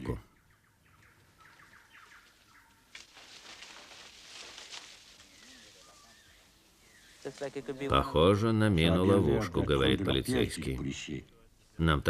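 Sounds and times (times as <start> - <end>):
faint bird calls: 0.0 - 3.7, 4.4 - 7.9
undergrowth rustling and crackling: 1.0 - 8.2.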